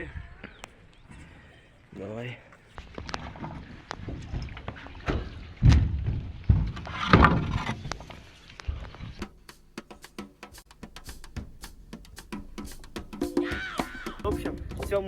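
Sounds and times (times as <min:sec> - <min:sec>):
knocks and thumps on a raft: 0:02.8 - 0:07.9.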